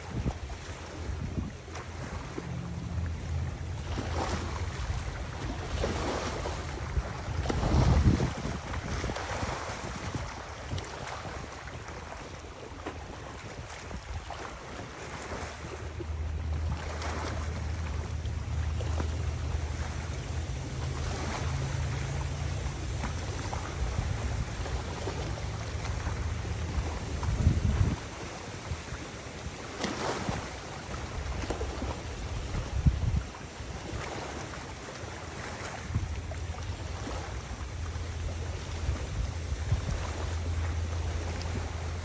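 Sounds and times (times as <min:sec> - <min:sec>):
steady low hum: 0:00.0 - 0:29.8, 0:30.4 - 0:42.0
open water: 0:00.0 - 0:42.0
wind buffeting microphone: 0:00.0 - 0:42.0.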